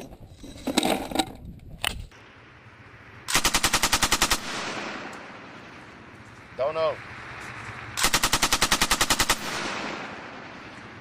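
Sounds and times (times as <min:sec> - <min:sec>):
machine gun burst: 0:03.3 - 0:04.8, 0:08.0 - 0:10.2.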